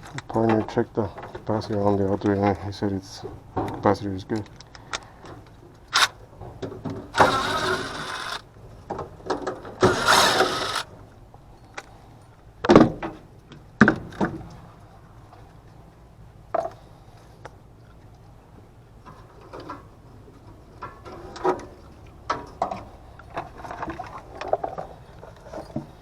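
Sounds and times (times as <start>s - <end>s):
rasping scrapes: 7.2s - 8.4s, 9.8s - 10.8s.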